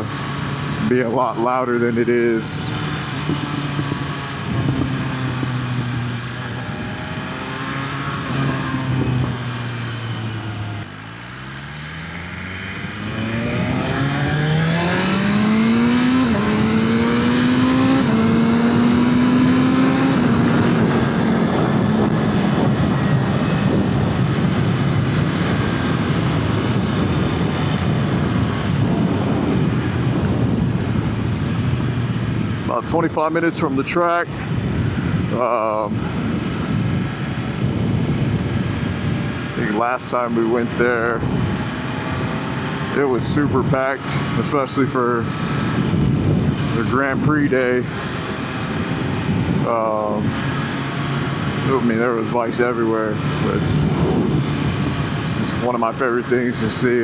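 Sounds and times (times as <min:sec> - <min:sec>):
wind rush: 0:00.0 - 0:11.2, 0:12.2 - 0:57.0
motorcycle engine: 0:00.0 - 0:57.0.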